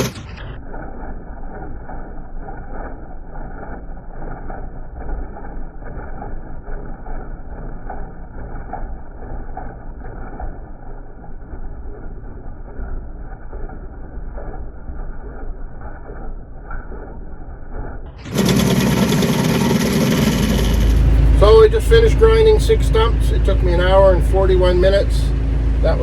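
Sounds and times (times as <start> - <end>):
diesel tractor engine running: 0.0 - 26.0
stump grinder: 18.2 - 26.0.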